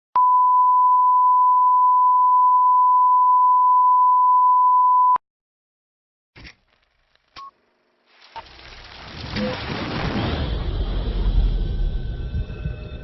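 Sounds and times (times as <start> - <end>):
steady electronic beep tone: 0.2 - 5.2.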